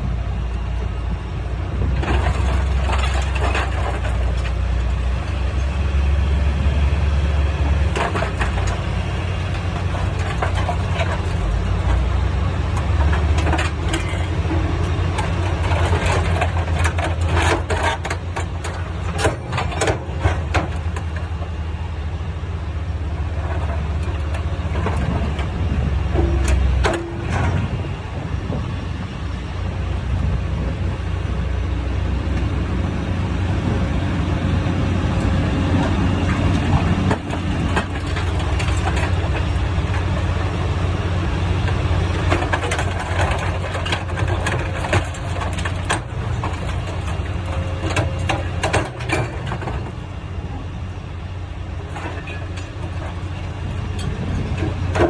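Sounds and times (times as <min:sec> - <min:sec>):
diesel power unit running: 0:00.0 - 0:55.0
metal knocks and clanks: 0:02.0 - 0:05.7, 0:07.2 - 0:21.5, 0:23.2 - 0:27.8, 0:35.2 - 0:50.1, 0:51.8 - 0:55.0.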